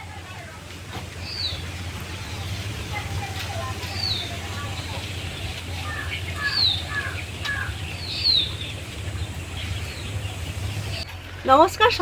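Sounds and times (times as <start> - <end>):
steady low hum: 0.0 - 12.0
bird chirps: 1.2 - 2.5, 3.6 - 11.1.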